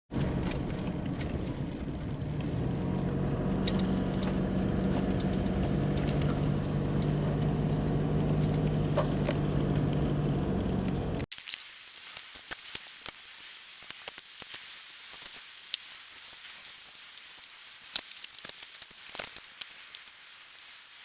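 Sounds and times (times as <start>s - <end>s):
vehicle engine rumbling: 0.1s - 11.3s.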